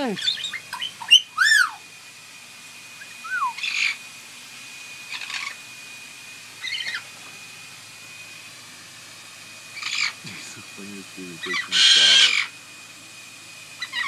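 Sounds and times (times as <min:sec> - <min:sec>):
parrot calling: 0:00.2 - 0:01.8, 0:03.0 - 0:04.0, 0:05.1 - 0:05.6, 0:06.6 - 0:07.1, 0:09.8 - 0:10.2, 0:11.4 - 0:12.5, 0:13.8 - 0:14.0
parrot raspy squawks: 0:00.2 - 0:01.8, 0:03.3 - 0:04.0, 0:05.1 - 0:05.6, 0:09.8 - 0:10.2, 0:11.5 - 0:12.5.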